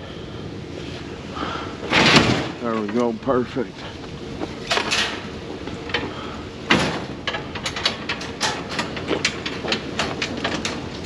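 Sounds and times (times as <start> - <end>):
metal knocks and clanks: 1.9 - 3.2, 4.4 - 11.0.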